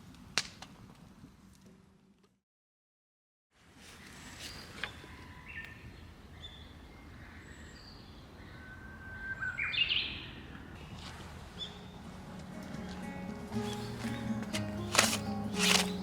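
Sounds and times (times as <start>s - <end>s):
outdoor background noise: 0.0s - 2.4s, 3.5s - 16.0s
birds calling: 12.6s - 16.0s.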